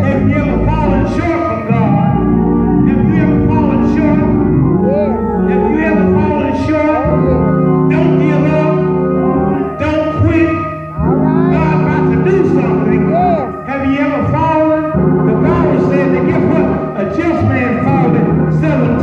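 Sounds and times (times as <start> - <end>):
sustained keyboard chords: 0.0 - 19.0
person singing: 2.9 - 8.8, 9.6 - 14.6.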